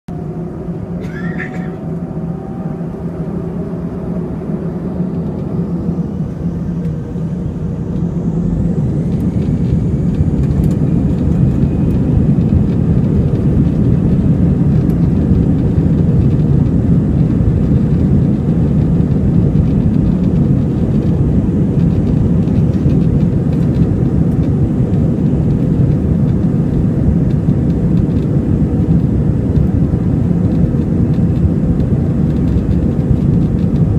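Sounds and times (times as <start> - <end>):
aircraft rolling down runway: 0.1 - 33.9
jet engines spooling up: 0.1 - 33.9.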